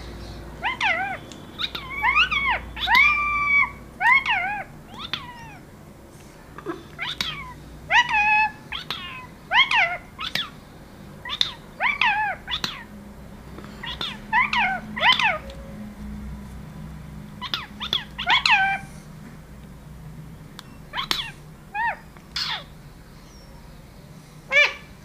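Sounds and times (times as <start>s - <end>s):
parakeet calling: 0.0s - 5.7s, 6.7s - 15.9s, 17.3s - 19.1s, 20.6s - 25.0s.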